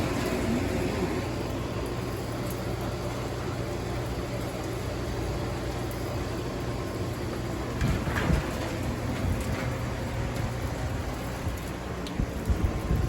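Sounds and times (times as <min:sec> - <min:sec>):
storm wind blowing: 0:07.7 - 0:13.0
wind rumbling on microphone: 0:07.7 - 0:13.0.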